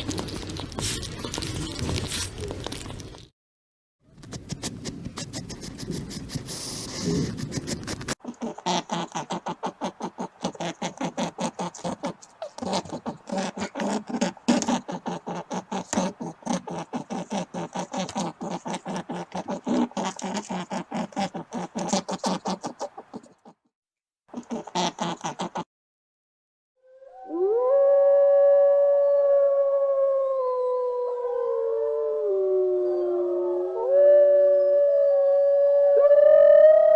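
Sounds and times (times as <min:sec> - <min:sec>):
rustling: 0:00.0 - 0:03.3.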